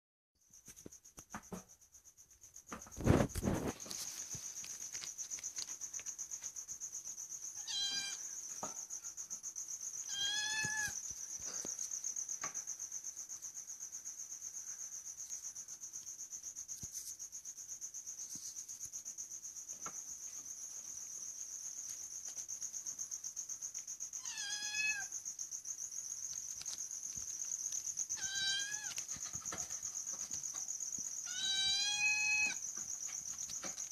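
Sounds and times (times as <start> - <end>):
cat meowing: 7.6 - 8.2, 10.1 - 11.0, 24.2 - 25.1, 28.2 - 29.0, 31.3 - 32.6.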